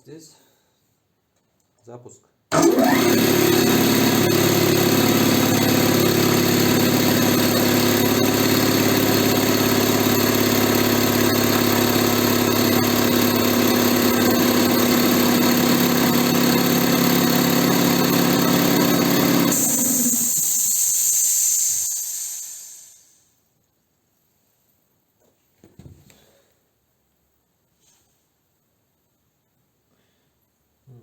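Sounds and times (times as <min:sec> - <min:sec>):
piston air compressor running: 0:02.5 - 0:23.2.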